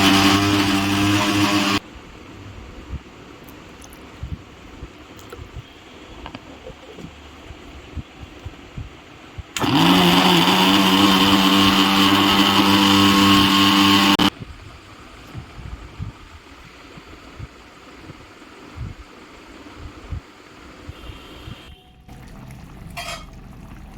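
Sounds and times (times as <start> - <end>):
mixer grinder motor spinning: 0.0 - 1.8, 9.6 - 14.3.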